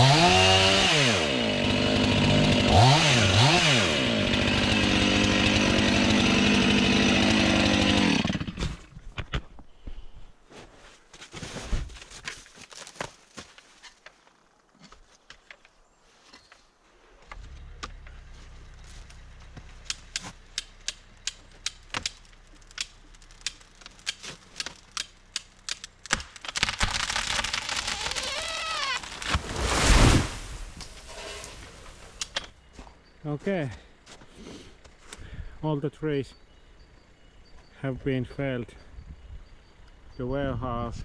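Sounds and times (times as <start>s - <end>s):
chainsaw idling and revving: 0.0s - 8.9s, 17.3s - 32.5s
sharp clicks: 19.8s - 29.2s.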